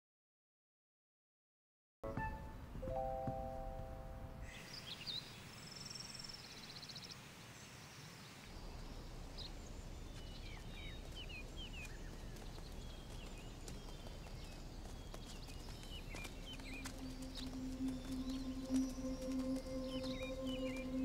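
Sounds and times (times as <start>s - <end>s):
low outdoor ambience: 2.0s - 21.0s
birds chirping and trilling: 4.4s - 21.0s.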